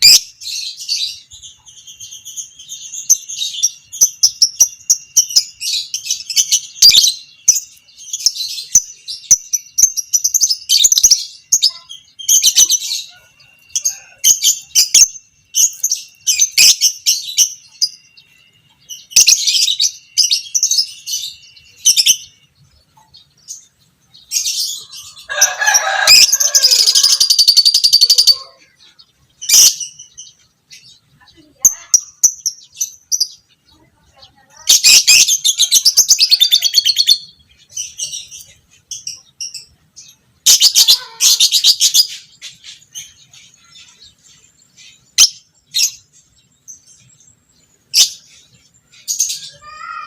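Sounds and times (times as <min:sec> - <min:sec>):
lovebird chattering call: 0:34.5 - 0:39.7.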